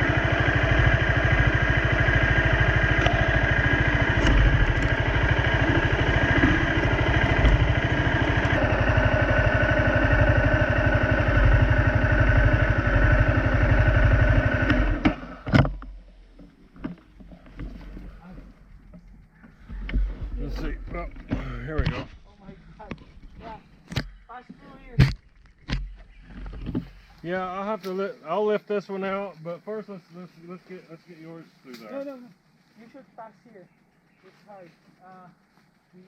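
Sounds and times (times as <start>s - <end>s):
dirt bike engine idling: 0.0s - 23.0s.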